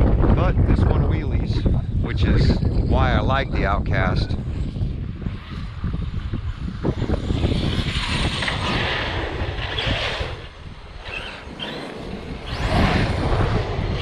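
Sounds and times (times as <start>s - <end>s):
wind rumbling on microphone: 0.0s - 14.0s
electric motor whine: 4.4s - 14.0s.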